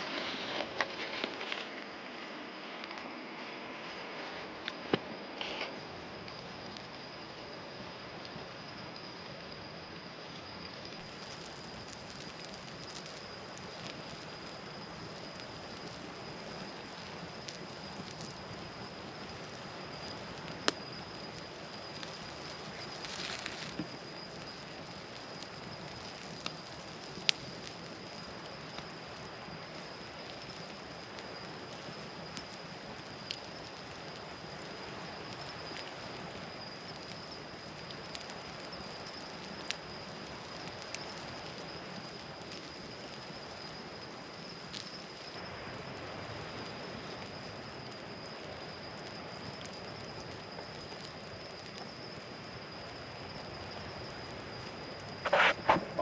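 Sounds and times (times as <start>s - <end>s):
campfire crackling: 0.0s - 56.0s
high whine: 55.2s - 56.0s.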